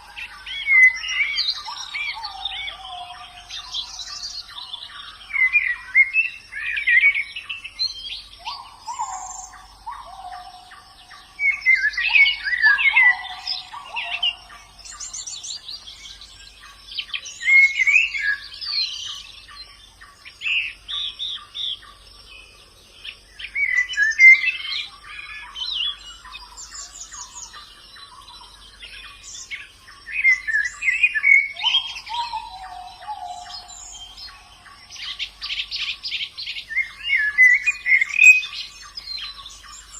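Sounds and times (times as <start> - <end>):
bird high twittering: 29.2 - 39.9.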